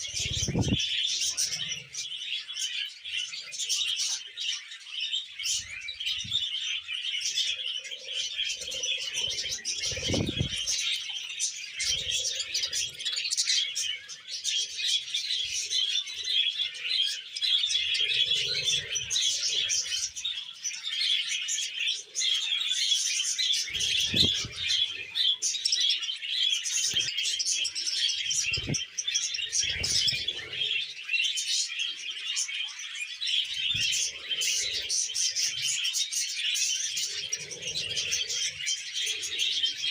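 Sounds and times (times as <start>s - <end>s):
budgerigar warbling and chattering: 0.0s - 2.0s, 8.4s - 13.8s, 23.6s - 25.9s, 28.2s - 30.8s.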